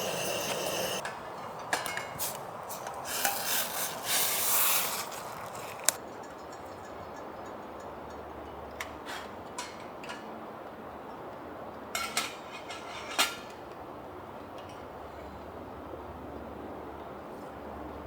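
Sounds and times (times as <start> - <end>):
faint steady hiss: 0.0 - 6.0
dishes and utensils clinking: 0.0 - 10.3, 12.0 - 13.6.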